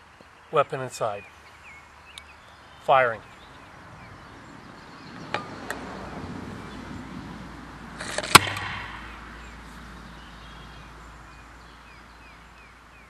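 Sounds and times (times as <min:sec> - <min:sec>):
airsoft mortar loud pop: 0:08.0 - 0:09.2.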